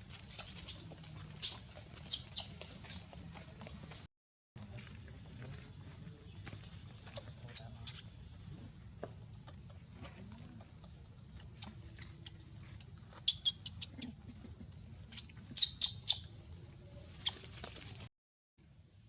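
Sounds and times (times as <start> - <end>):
monkeys squeaking and chirping: 0.3 - 0.8, 1.4 - 3.1, 11.5 - 12.4, 13.2 - 14.2, 15.1 - 16.3, 17.2 - 17.5.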